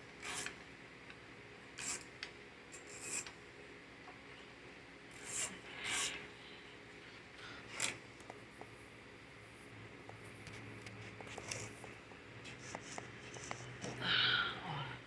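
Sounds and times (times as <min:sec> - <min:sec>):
metal parts and tools scraping: 0:02.7 - 0:03.3, 0:05.2 - 0:06.2.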